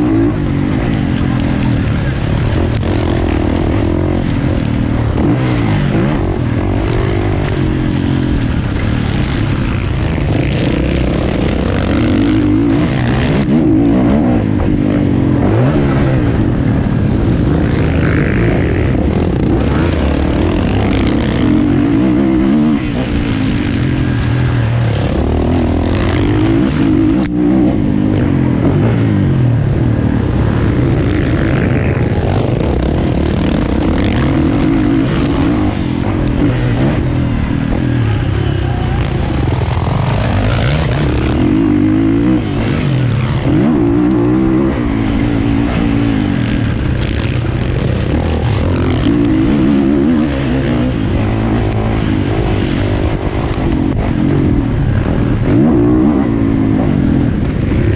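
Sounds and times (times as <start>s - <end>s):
motocross bike engine revving: 0.0s - 57.9s.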